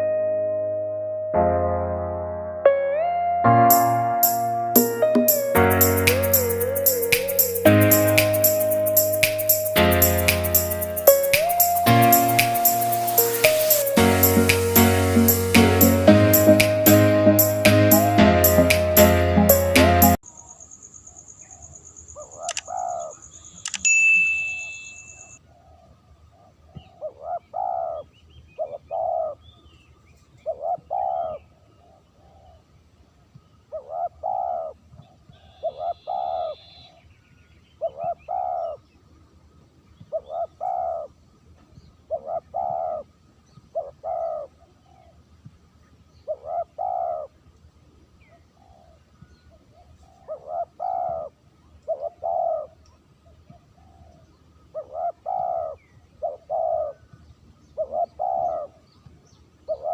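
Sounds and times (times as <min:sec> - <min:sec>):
dove cooing: 0:50.2 - 0:51.3, 0:51.9 - 0:52.8, 0:54.8 - 0:57.0, 0:57.8 - 0:58.8.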